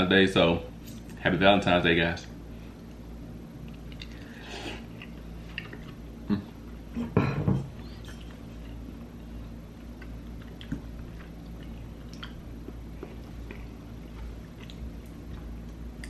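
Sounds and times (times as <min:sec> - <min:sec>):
person chewing food: 0:03.6 - 0:06.8, 0:09.8 - 0:16.0.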